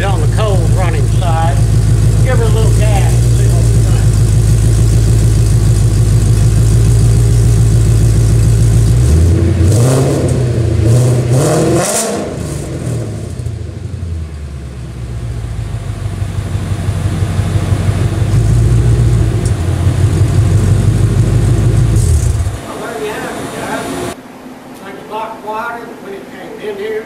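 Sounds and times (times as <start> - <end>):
car engine idling and revving: 0.0 - 22.7.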